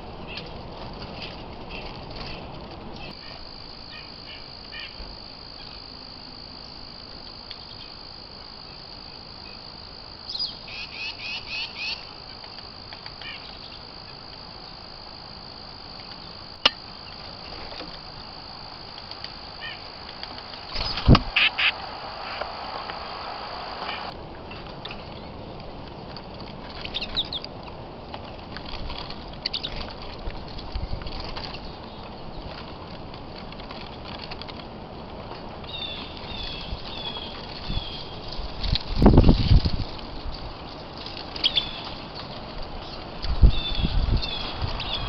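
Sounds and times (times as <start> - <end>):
high-pitched whine: 3.2 - 24.2
bird chirps: 10.3 - 12.5, 20.5 - 22.5.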